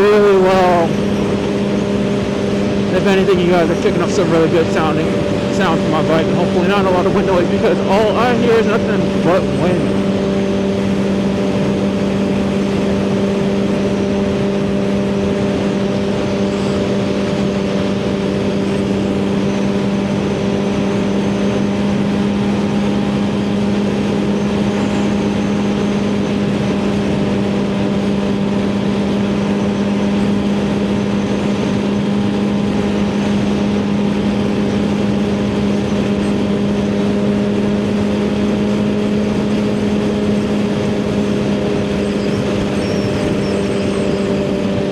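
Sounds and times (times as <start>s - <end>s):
motorcycle engine cruising: 0.0s - 19.7s, 32.6s - 44.9s.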